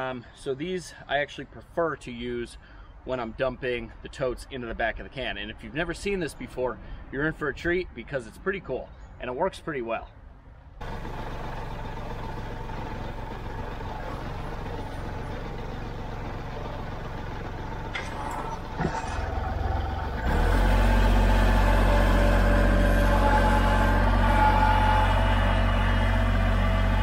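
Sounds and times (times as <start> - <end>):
tractor diesel engine running: 10.8 - 27.0.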